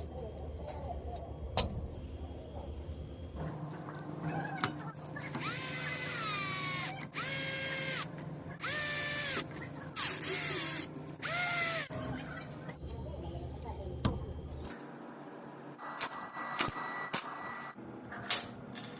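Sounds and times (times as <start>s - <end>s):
steady low hum: 0.0s - 18.9s
small motor whining: 5.4s - 9.4s, 10.0s - 11.9s.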